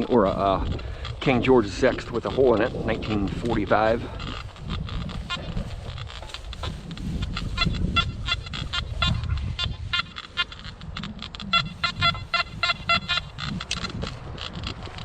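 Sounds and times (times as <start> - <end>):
wind rumble on microphone: 0.0 - 15.0
metal detector beeps: 5.2 - 13.9.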